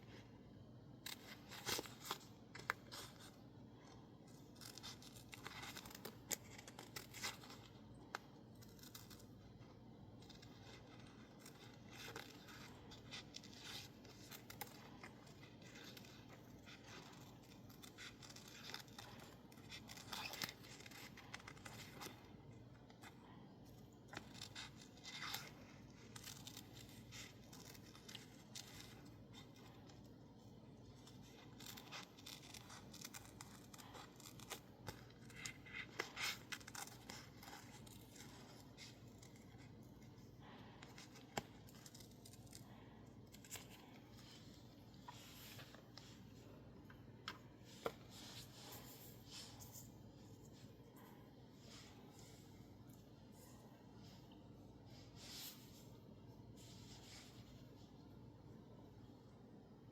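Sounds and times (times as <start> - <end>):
scissors snipping paper: 1.0 - 30.2, 30.8 - 44.5.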